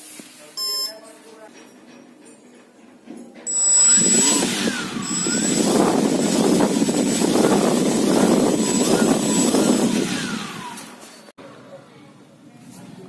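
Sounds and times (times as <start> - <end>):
faint high whine: 3.5 - 10.9
fan air rushing: 3.5 - 11.3.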